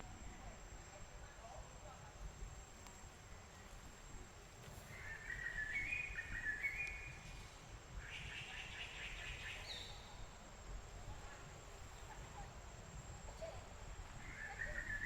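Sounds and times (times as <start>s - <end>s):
songbird singing: 4.8s - 7.3s, 8.0s - 10.3s, 14.2s - 15.0s.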